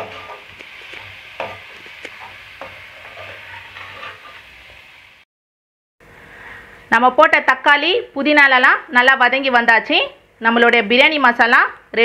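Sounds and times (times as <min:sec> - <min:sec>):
metal spatula scraping pan: 0:00.0 - 0:04.8
food sizzling in metal pan: 0:00.0 - 0:05.2.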